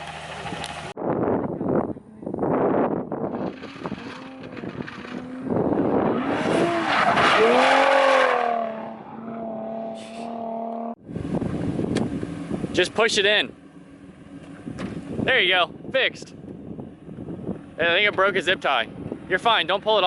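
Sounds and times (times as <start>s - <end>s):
car engine revving: 1.8s - 15.2s.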